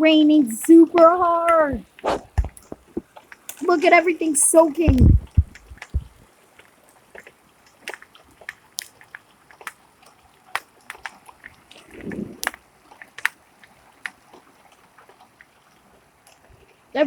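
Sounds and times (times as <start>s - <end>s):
raindrops on hard surfaces: 0.0s - 17.0s
muffled low thud: 4.9s - 6.2s.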